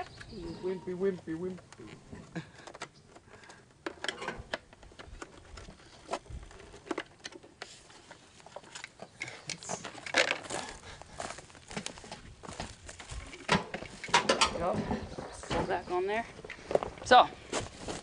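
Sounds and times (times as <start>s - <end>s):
handling clicks knocks and rustles: 1.1s - 10.7s, 11.6s - 17.0s.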